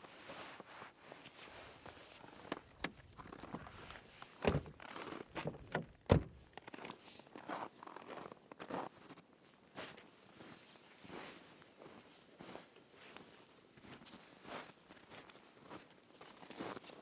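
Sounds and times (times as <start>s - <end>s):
knocks and thuds: 4.5s - 4.8s, 5.4s - 6.4s.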